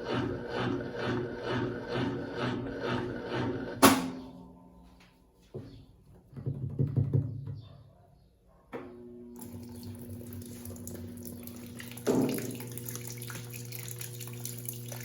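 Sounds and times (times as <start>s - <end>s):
washing machine hum: 0.0s - 4.2s, 8.9s - 15.0s
water running: 9.4s - 15.0s
washing machine knocks and sloshes: 9.6s - 15.0s.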